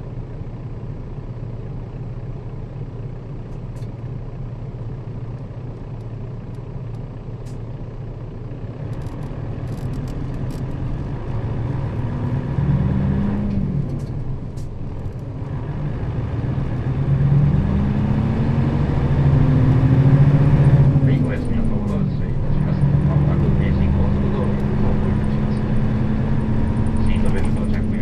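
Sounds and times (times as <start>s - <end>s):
bus diesel engine: 0.0s - 28.0s.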